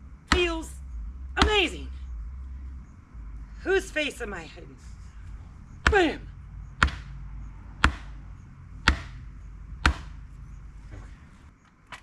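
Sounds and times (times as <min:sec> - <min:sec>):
hammer striking wood: 0:06.8 - 0:07.2, 0:07.8 - 0:08.2, 0:08.8 - 0:09.2, 0:09.8 - 0:10.2.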